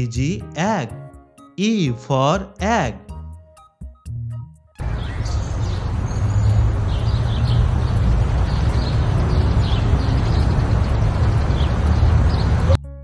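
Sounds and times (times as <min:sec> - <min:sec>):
bird chirps: 0:04.8 - 0:12.8
steady low rumble: 0:04.8 - 0:12.8.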